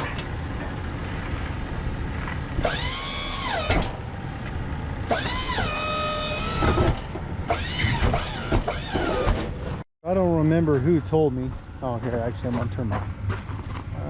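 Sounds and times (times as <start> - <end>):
hydraulic pump motor whining: 2.6 - 4.0, 5.0 - 9.8.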